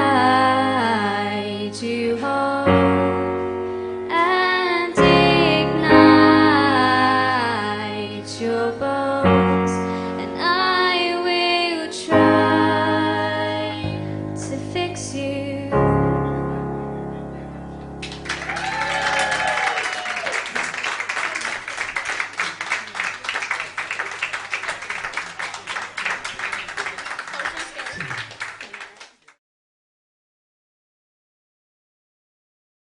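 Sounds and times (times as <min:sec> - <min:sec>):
person singing: 0:00.0 - 0:02.8, 0:04.1 - 0:16.2
piano accompaniment: 0:00.0 - 0:19.5
audience applause: 0:18.0 - 0:29.4.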